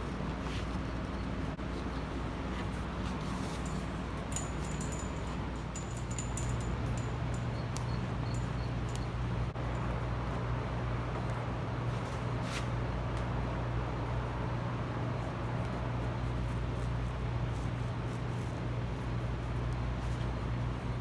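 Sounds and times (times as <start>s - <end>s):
steady low hum: 0.0s - 21.0s
handling noises: 0.4s - 10.4s.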